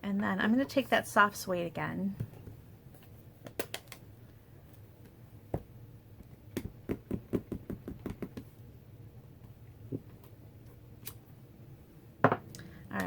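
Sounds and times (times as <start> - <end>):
stamp tapping on ink pad: 6.6 - 8.5.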